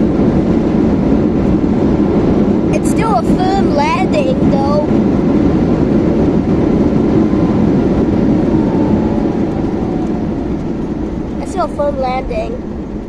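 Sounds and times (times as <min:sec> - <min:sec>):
engine and wheel rumble: 0:00.0 - 0:13.0
faint whine falling in pitch: 0:06.2 - 0:13.0.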